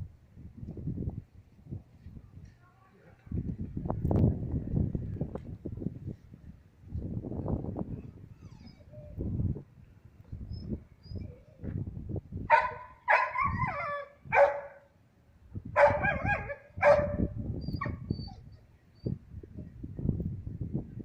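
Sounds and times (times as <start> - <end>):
dog whining and yelping: 8.0 - 9.2, 10.5 - 11.7, 13.1 - 14.5, 15.8 - 19.2.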